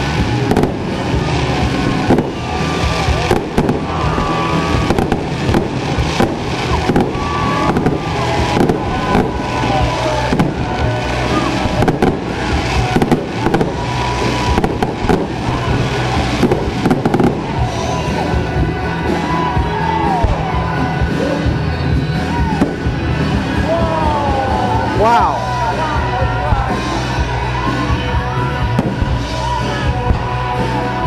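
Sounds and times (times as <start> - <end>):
fireworks bursting with sharp bangs: 0.0 - 31.0
music: 0.0 - 31.0.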